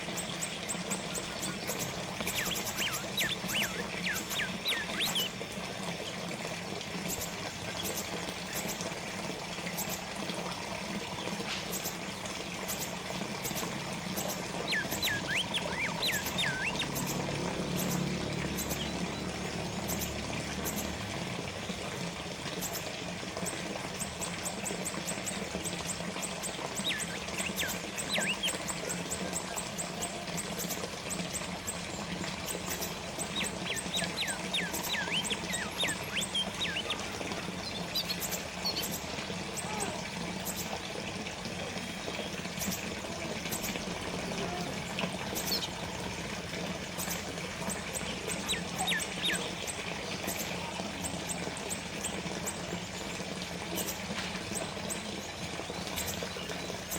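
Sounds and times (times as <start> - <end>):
water fountain trickling: 0.0 - 56.9
bird chirping: 1.6 - 5.3, 14.2 - 19.2, 26.8 - 28.6, 32.7 - 37.0.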